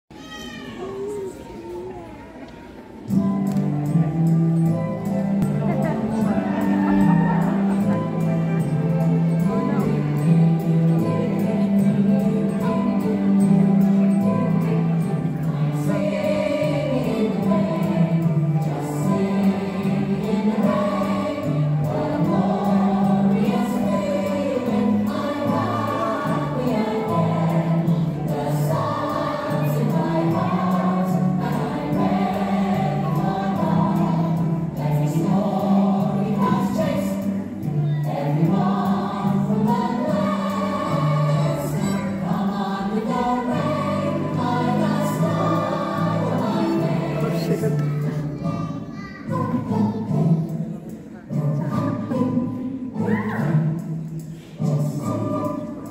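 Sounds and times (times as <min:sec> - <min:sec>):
instrumental accompaniment with bass: 0:03.1 - 0:48.8
group of voices singing: 0:14.5 - 0:55.9.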